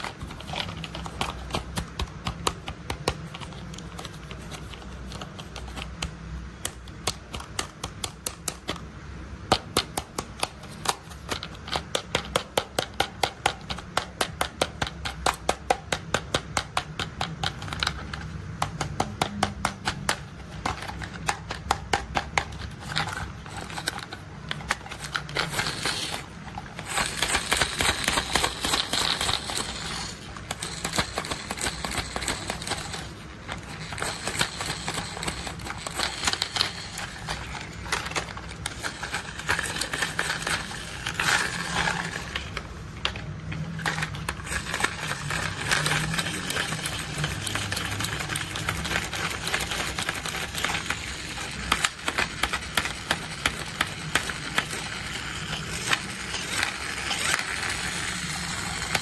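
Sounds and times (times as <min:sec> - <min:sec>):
plastic toys clicking and rattling: 0:00.0 - 0:59.0.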